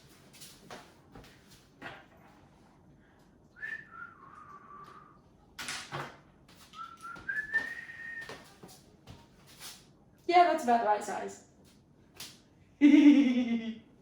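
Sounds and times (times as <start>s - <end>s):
person whistling sliding notes: 3.6s - 5.2s, 6.8s - 8.4s.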